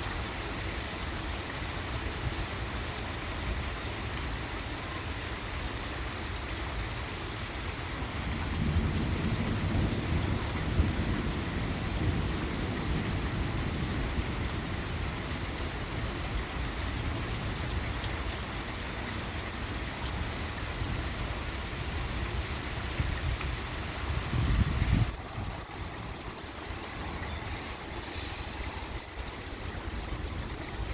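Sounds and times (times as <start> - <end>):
steady rain falling: 0.0 - 30.9
low rumble of thunder: 8.0 - 17.9, 21.8 - 30.9.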